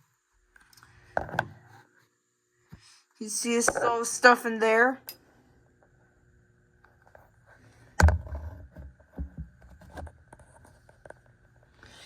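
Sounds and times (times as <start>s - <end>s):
faint high hum: 0.0s - 8.3s.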